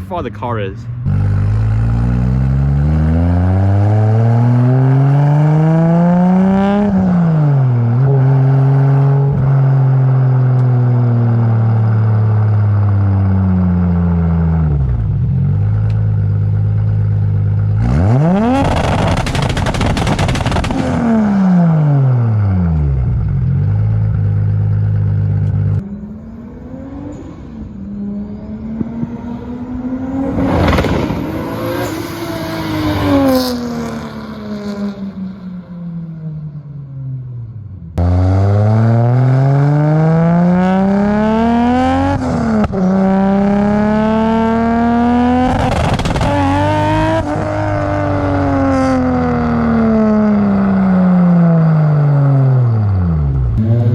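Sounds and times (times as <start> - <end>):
engine revving: 0.0 - 35.4, 38.0 - 53.9
car engine accelerating hard: 1.0 - 35.4, 38.0 - 53.9
car passing by loudly: 26.6 - 35.2.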